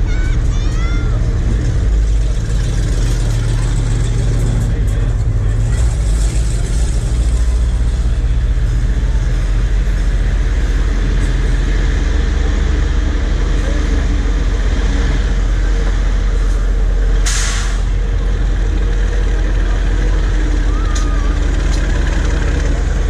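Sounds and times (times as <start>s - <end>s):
diesel truck engine running: 0.0s - 23.0s
air hiss: 17.2s - 17.9s.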